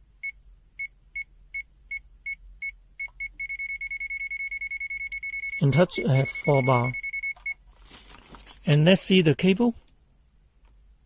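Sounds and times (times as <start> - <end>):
multimeter high-pitched beeps: 3.0 - 7.6.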